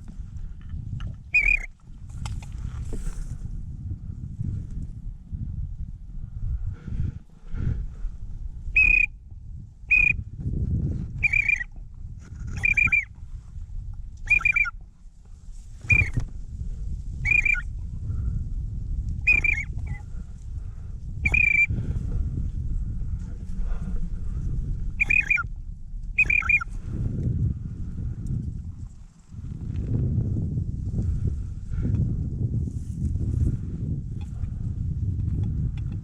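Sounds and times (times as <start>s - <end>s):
low rumble of wind: 0.0s - 36.0s
geese honking: 1.4s - 1.7s, 8.8s - 9.1s, 11.2s - 11.7s, 12.6s - 13.0s, 14.3s - 14.7s, 17.3s - 17.6s, 19.3s - 19.7s, 21.3s - 21.7s, 25.0s - 25.4s, 26.2s - 26.7s.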